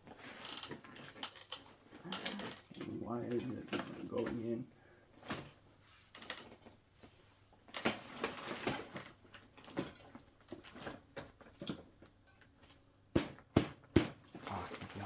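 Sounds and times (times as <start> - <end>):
small metal parts clicking: 0.4 - 2.8.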